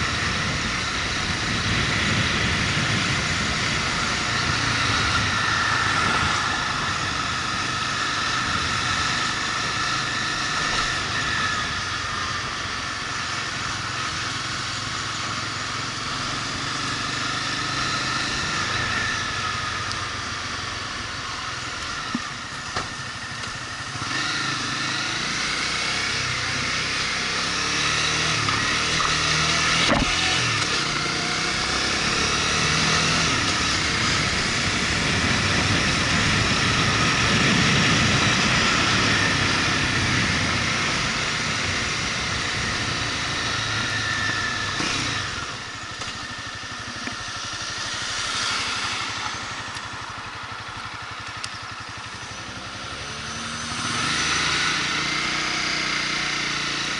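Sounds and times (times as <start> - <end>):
motorcycle engine running: 0.0 - 56.9
wind and road noise: 0.0 - 56.9.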